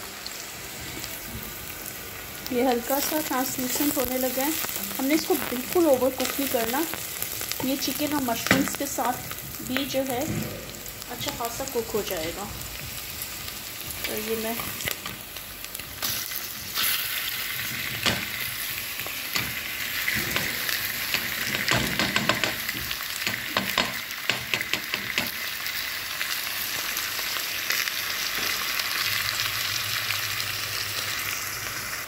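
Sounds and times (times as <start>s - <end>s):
onions and chicken sizzling: 0.0s - 32.0s
wooden spatula knocking pot: 21.6s - 22.7s, 23.3s - 25.4s.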